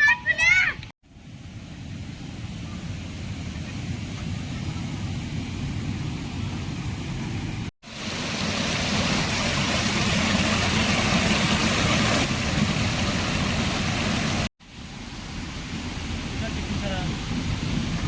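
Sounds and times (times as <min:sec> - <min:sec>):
wind and rain storm roar: 0:00.8 - 0:18.0
wind buffeting microphone: 0:15.3 - 0:18.0.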